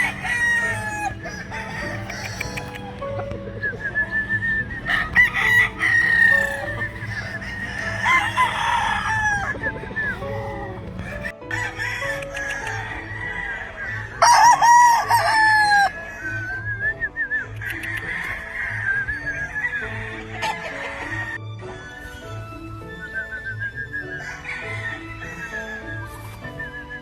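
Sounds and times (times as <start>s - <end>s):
hens clucking: 0.0s - 11.3s
roosters crowing: 0.0s - 16.8s, 17.6s - 21.4s, 24.1s - 26.6s.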